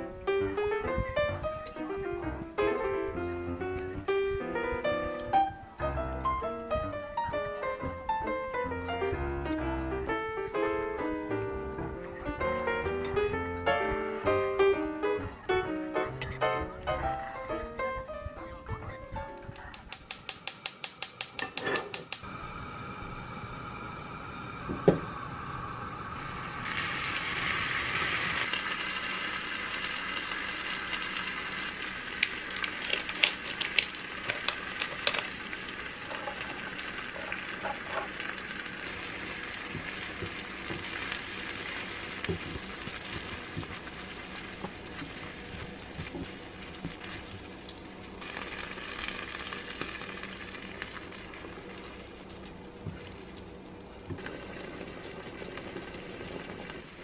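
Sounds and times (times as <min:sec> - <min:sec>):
utensils clicking against pan: 0:19.6 - 0:22.2, 0:32.2 - 0:35.4
food sizzling in frying pan: 0:22.4 - 0:57.0.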